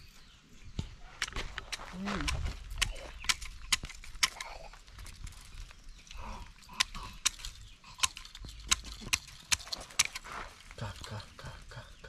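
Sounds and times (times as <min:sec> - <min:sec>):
footsteps on hard ground: 0:09.6 - 0:10.8.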